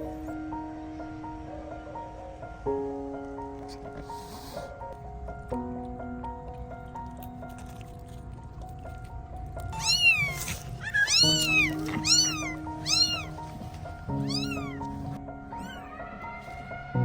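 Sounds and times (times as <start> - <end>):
background music: 0.0 - 17.0
cat mewing: 9.7 - 16.0.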